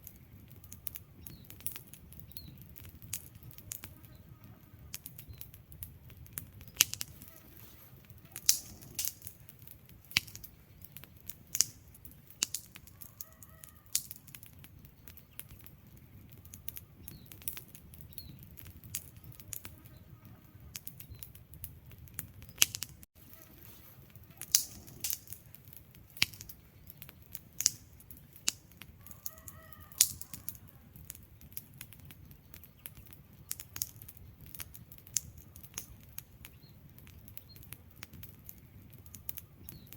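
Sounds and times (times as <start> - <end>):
fire crackling and popping: 0.0 - 39.9
low rumble of flame: 0.0 - 39.9
faint squeaks: 7.1 - 9.2, 23.2 - 25.5.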